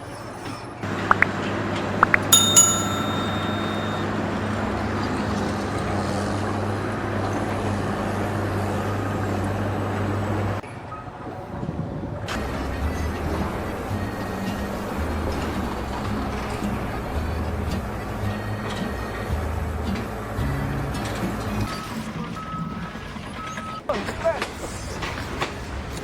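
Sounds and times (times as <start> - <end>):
metallic clang ringing: 2.4 - 4.1.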